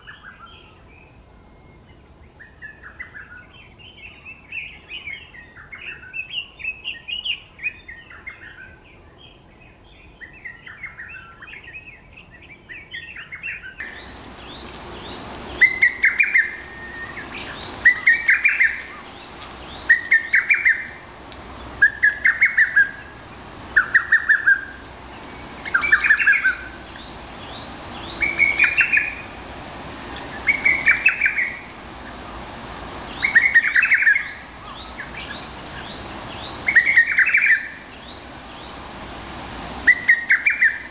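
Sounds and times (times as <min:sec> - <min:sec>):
cuckoo singing: 0:13.8 - 0:29.5, 0:33.0 - 0:35.8
small birds chattering: 0:13.8 - 0:40.9.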